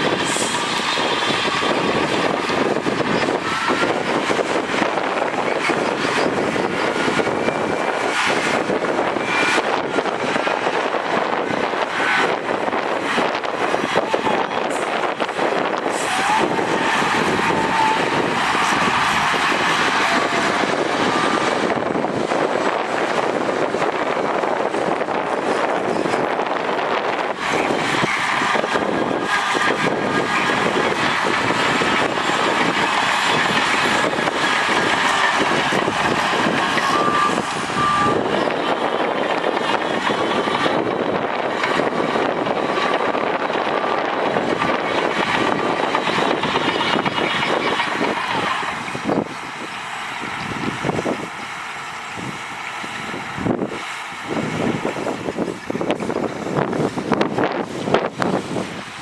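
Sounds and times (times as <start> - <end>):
heavy machinery engine running: 0.0 - 59.0
backup alarm beeping: 35.6 - 39.0.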